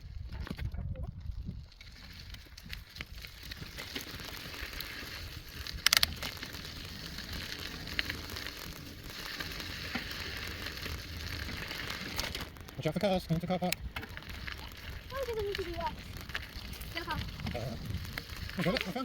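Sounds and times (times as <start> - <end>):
wind on microphone: 0.0 - 3.8, 13.8 - 19.0
bicycle tyres rolling on rough surface: 0.0 - 19.0.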